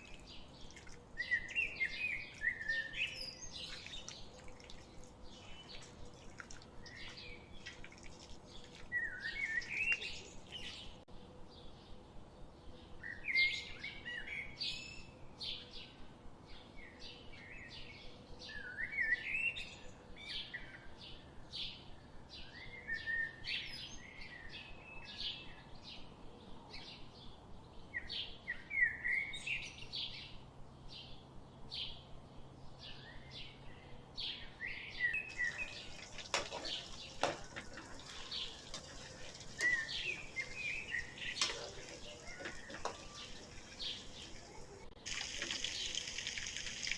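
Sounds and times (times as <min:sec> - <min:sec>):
small birds chirping: 0:00.0 - 0:11.9, 0:26.8 - 0:46.9.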